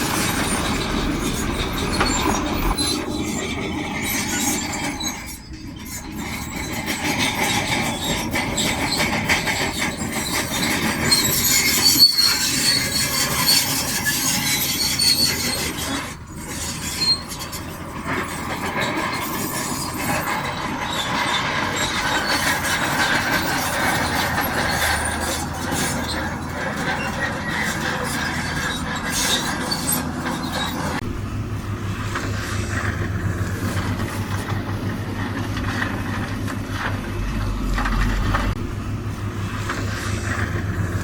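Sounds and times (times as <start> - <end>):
high squeal: 0.0 - 31.0
bulldozer engine and tracks: 0.0 - 41.0.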